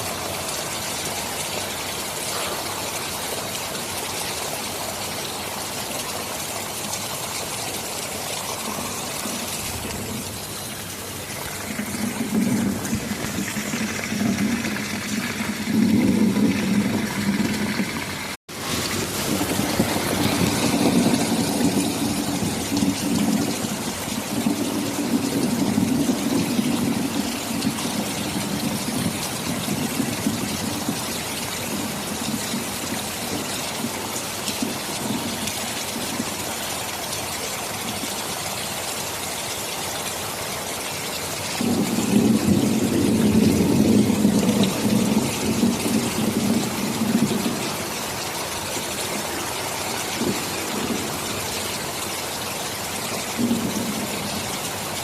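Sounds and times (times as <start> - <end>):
heavy rain falling: 0.0 - 55.0
low rolling thunder: 8.4 - 36.3, 41.6 - 55.0.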